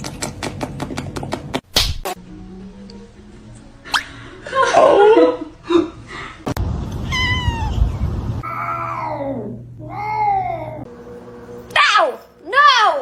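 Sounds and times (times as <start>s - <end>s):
cat meowing: 7.0s - 9.1s.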